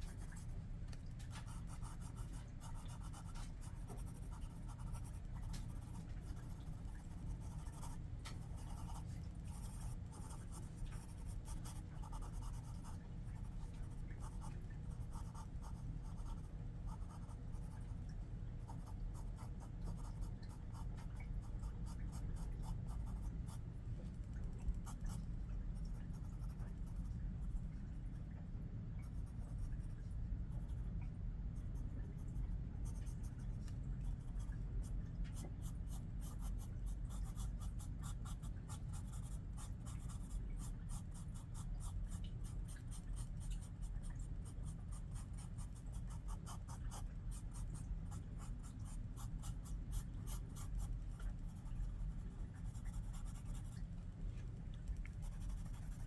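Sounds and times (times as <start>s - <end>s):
low steady hum: 0.0s - 56.0s
pencil scratching on paper: 7.1s - 12.9s, 55.3s - 56.0s.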